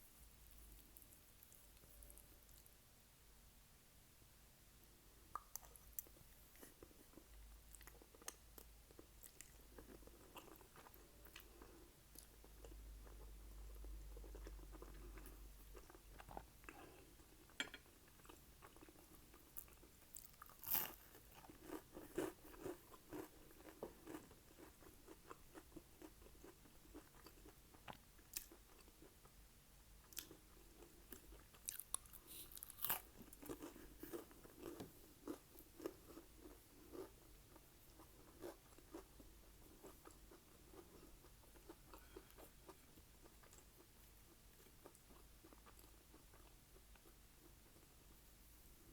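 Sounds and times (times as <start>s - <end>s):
chewing food: 5.4s - 29.3s, 30.0s - 48.0s.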